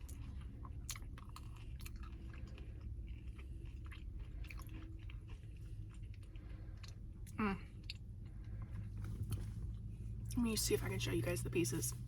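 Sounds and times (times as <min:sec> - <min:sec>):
person chewing crunchy food: 0:00.0 - 0:09.4
low background hum: 0:00.0 - 0:12.0.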